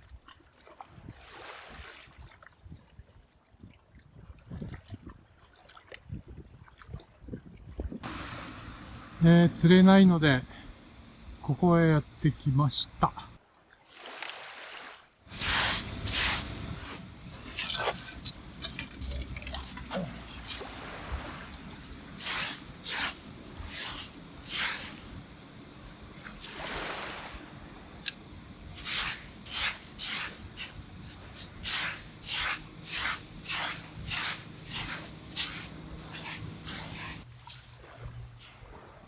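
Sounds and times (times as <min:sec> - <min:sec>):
scraping strokes in wet sand: 0:08.0 - 0:13.4, 0:14.0 - 0:38.7.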